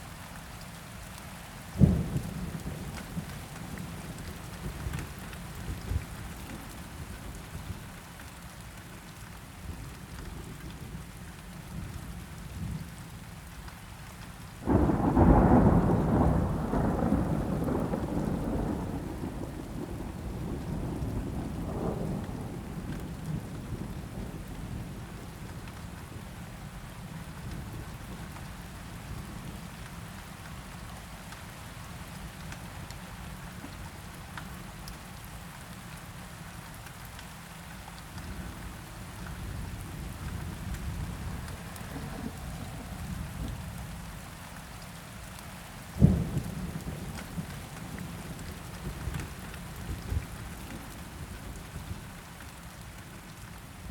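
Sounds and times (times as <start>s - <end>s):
steady rain falling: 0.0s - 53.9s
loud crack of thunder: 14.7s - 22.7s
low rolling thunder: 14.7s - 25.4s, 39.4s - 44.1s, 46.0s - 52.0s.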